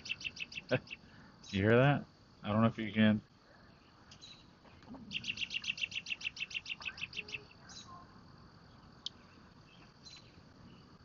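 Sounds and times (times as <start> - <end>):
bird rapid trill: 0.0 - 1.7, 5.1 - 8.0
faint insect drone: 0.0 - 11.0.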